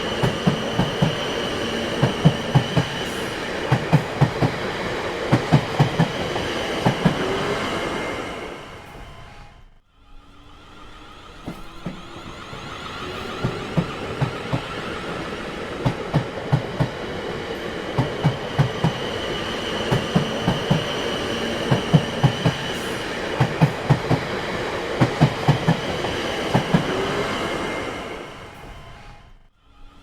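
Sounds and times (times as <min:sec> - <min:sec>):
train wheels clacking on rail joints: 0:00.0 - 0:07.4, 0:11.2 - 0:27.4
train rumble: 0:00.0 - 0:30.0.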